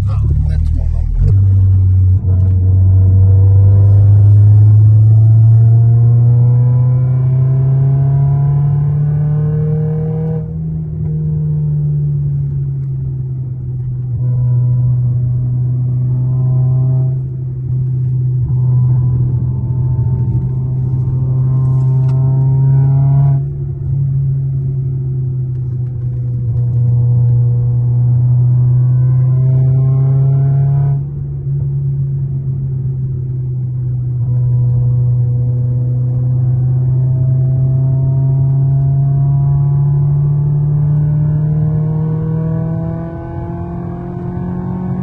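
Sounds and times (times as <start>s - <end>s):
car engine accelerating: 0.0s - 45.0s.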